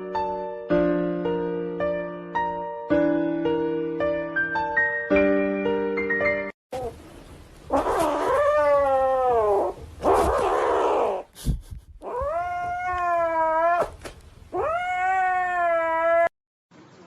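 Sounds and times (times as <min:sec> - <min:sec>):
cat yowling: 0:07.7 - 0:11.3, 0:12.0 - 0:16.3.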